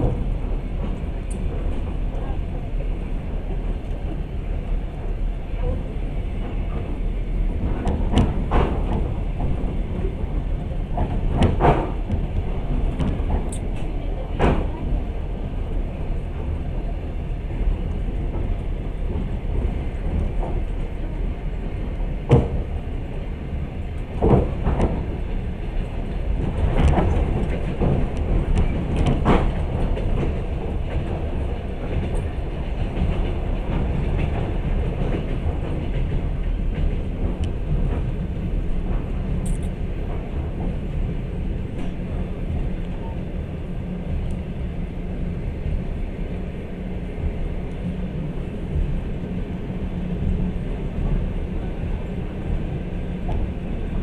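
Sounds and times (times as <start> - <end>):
train carriage rumble: 0.0 - 54.0.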